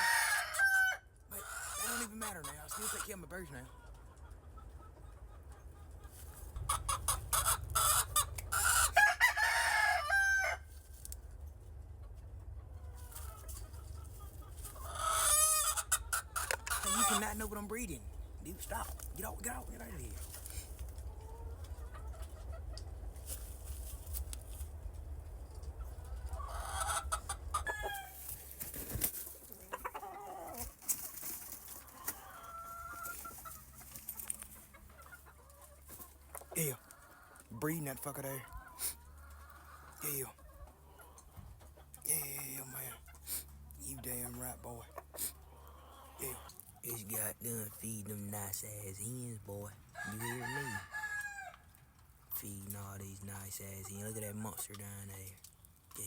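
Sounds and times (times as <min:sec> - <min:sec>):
rooster crowing: 0:00.0 - 0:01.1, 0:07.4 - 0:10.7, 0:27.5 - 0:28.2, 0:50.0 - 0:51.6
roosters crowing and clucking: 0:00.0 - 0:56.0.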